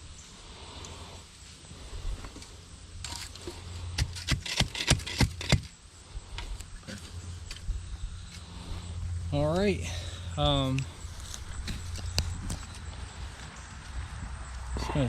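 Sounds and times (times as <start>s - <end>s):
tools knocking and scraping: 3.0s - 5.7s.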